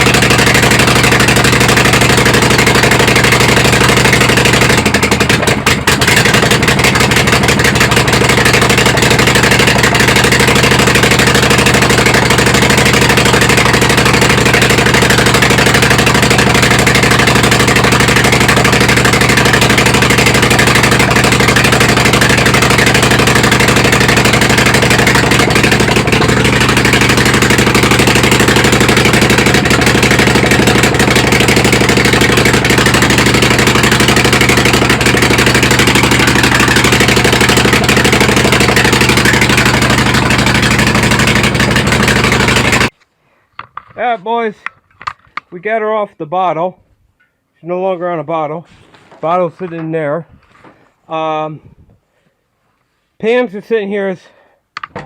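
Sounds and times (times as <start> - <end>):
small engine running: 0.0 - 43.0.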